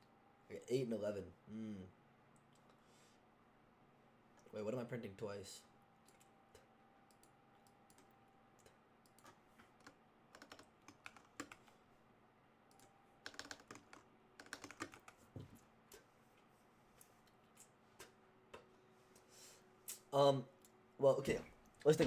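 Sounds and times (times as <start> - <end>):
faint keyboard typing: 6.0 - 11.8, 12.6 - 18.7.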